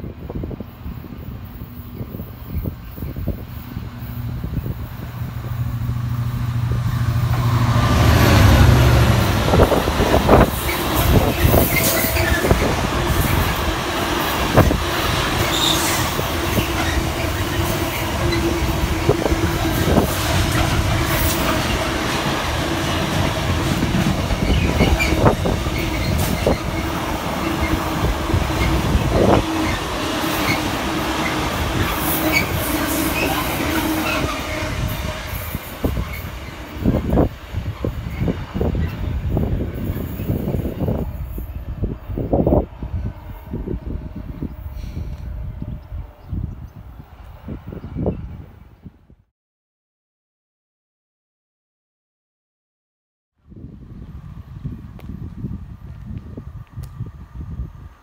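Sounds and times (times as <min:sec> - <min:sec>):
diesel train engine hum: 0:00.0 - 0:48.8, 0:53.6 - 0:58.0
wheels rumbling over rail joints: 0:00.4 - 0:45.9
wheel squeals: 0:10.6 - 0:12.7, 0:15.4 - 0:18.5, 0:24.3 - 0:27.8, 0:31.8 - 0:34.7.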